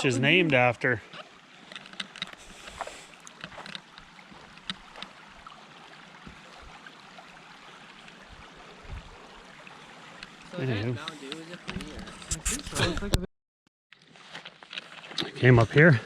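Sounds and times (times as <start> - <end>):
creek water running: 0.0 - 13.2, 14.0 - 16.0
faint clicks and knocks: 1.6 - 2.4.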